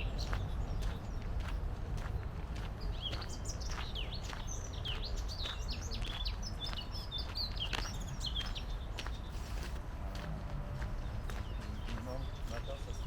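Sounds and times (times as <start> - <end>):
footsteps on a path: 0.0 - 13.0
songbirds chirping and singing: 0.0 - 13.0.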